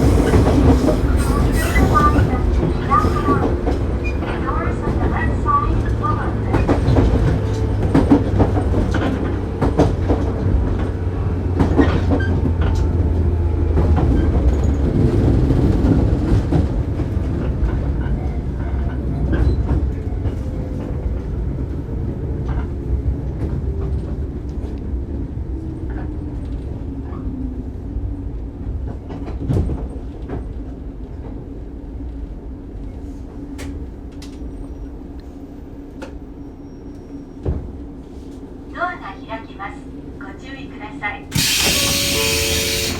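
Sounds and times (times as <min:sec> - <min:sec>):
train motor hum: 0:40.9 - 0:42.9
wheels clacking over rail joints: 0:41.4 - 0:42.9.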